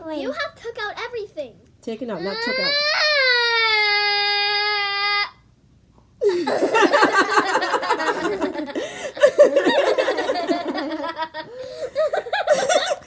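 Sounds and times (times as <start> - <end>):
children laughing loudly: 6.2 - 13.0.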